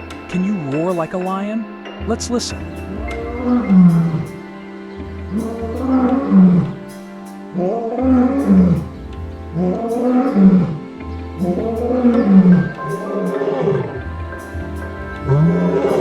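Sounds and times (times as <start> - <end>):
background music: 0.0 - 16.0
lion roaring: 2.8 - 4.4, 11.4 - 16.0.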